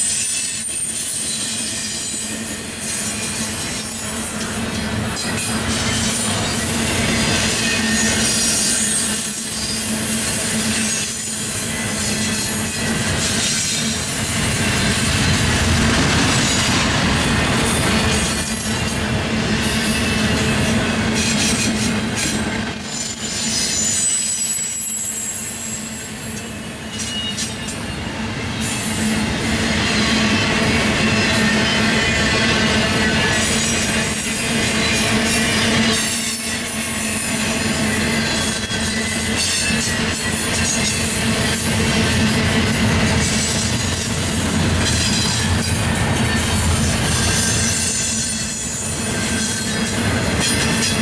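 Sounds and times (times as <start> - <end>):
freight train rumbling on rails: 0.0 - 51.0
high-pitched wheel squeal: 6.5 - 13.7, 19.6 - 26.1.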